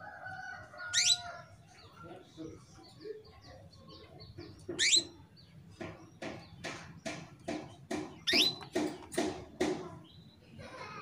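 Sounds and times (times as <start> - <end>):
canary chirping: 0.7 - 9.3.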